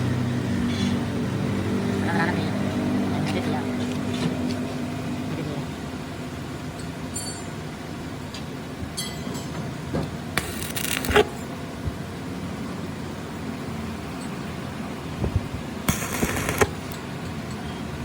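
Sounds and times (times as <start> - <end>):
steady background hum: 9.9 - 18.0
rasping scrape: 10.4 - 11.4, 15.9 - 16.7.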